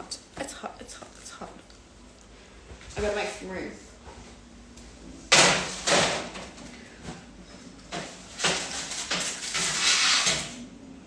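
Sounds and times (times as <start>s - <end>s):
kitchen items scraping and clattering: 5.4s - 10.6s.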